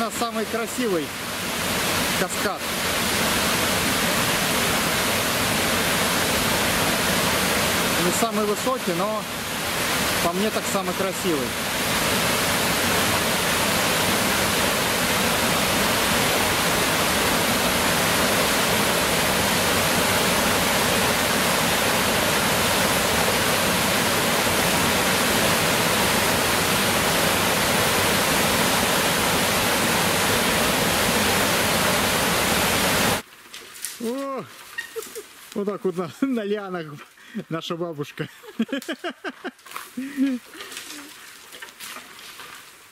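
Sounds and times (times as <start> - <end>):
waterfall rushing: 0.0 - 33.2.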